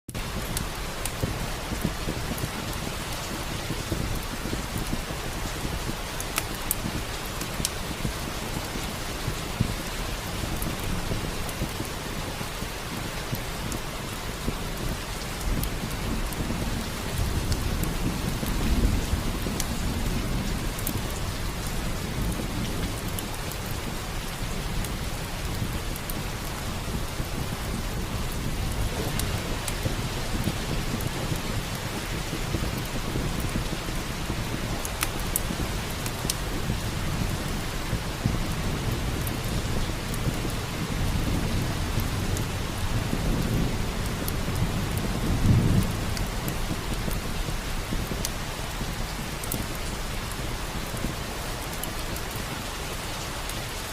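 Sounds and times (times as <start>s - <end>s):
heavy rain: 0.1s - 53.9s
wood fire crackling: 0.1s - 53.9s
rolling thunder rumbles: 0.2s - 51.3s.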